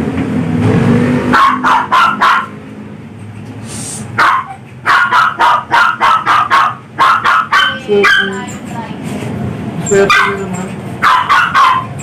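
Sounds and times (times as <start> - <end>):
dog barking: 1.3 - 2.6, 4.2 - 8.5, 10.0 - 12.0.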